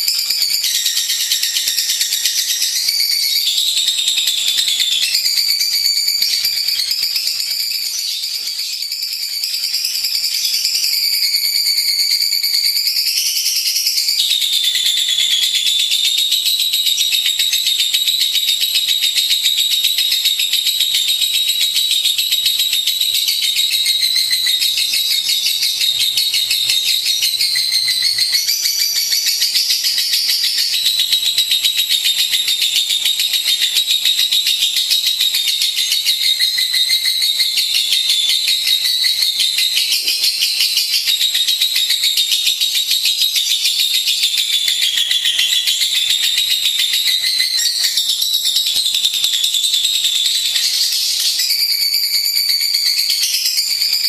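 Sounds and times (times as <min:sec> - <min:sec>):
lovebird chattering trill: 0:23.3 - 0:54.0.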